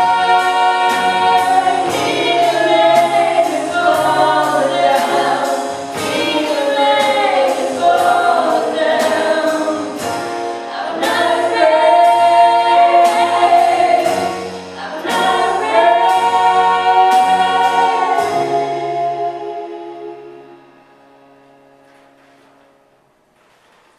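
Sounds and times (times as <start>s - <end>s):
instrumental accompaniment with beat: 0.0s - 20.6s
group singing worship song: 0.0s - 20.8s.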